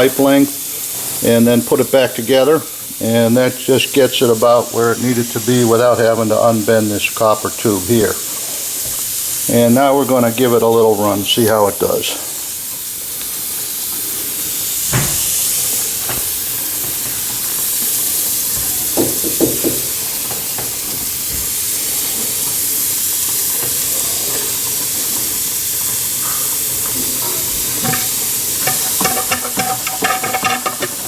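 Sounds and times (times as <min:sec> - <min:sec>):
steam hissing: 0:00.0 - 0:31.0
steam engine knocks: 0:14.9 - 0:16.4, 0:18.6 - 0:21.1, 0:27.6 - 0:31.0.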